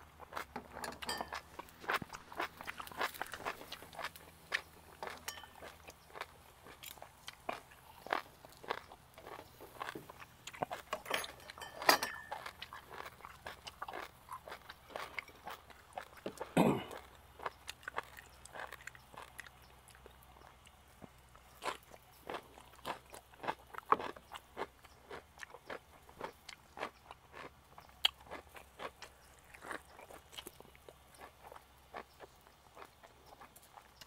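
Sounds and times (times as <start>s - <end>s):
person chewing crunchy food: 0.0s - 34.0s.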